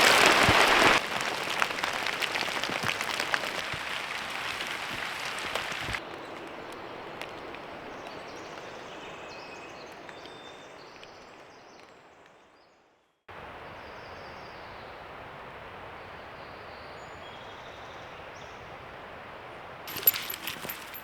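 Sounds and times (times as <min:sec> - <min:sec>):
even outdoor hiss: 0:13.3 - 0:21.0.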